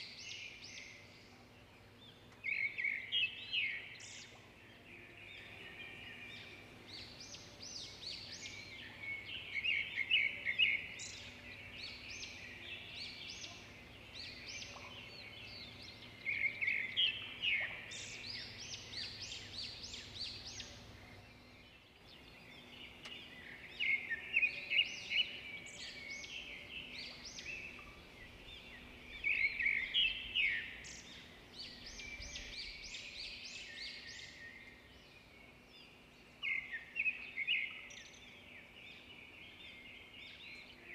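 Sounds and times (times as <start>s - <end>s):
birds chirping and calling: 0.0s - 35.3s.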